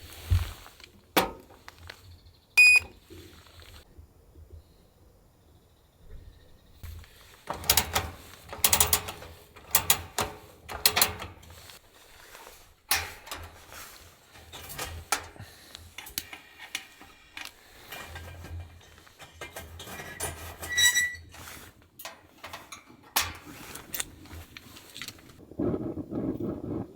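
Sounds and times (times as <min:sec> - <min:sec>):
gear clicking and rustling: 0:06.8 - 0:25.4.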